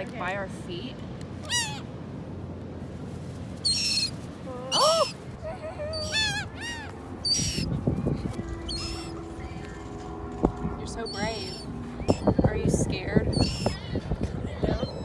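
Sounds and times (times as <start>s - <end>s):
seagulls calling: 1.4s - 1.9s, 3.6s - 10.0s, 10.8s - 15.0s.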